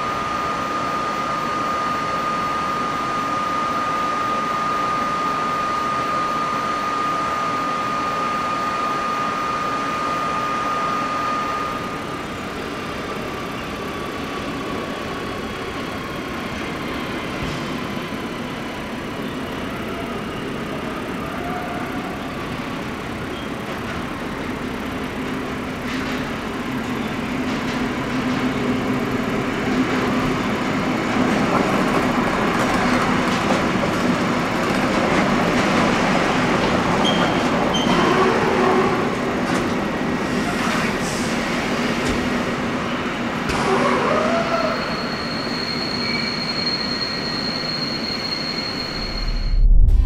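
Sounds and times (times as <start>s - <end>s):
freight train rumbling: 11.9s - 45.2s, 48.7s - 50.0s
wheels squealing: 37.0s - 39.1s, 43.7s - 49.5s
low steady hum: 49.0s - 50.0s.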